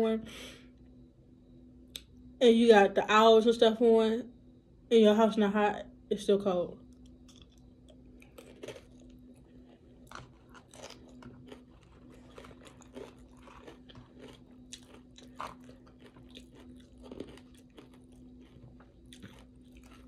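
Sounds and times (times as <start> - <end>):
faint steady hum: 0.0 - 20.0
chewing and crunching chips: 6.8 - 20.0.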